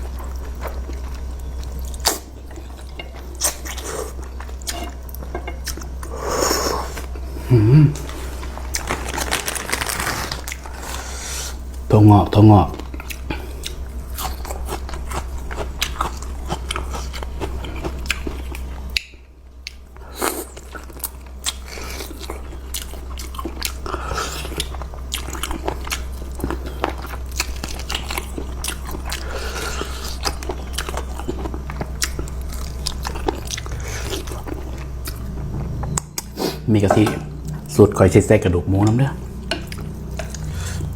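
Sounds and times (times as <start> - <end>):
chewing and crunching noodles: 8.0 - 11.8, 12.7 - 36.7, 38.7 - 40.9.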